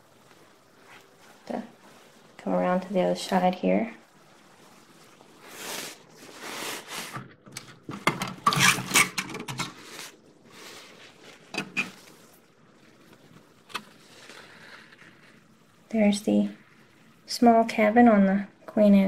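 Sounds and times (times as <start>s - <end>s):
plastic parts rustling and clicking: 7.1s - 10.2s.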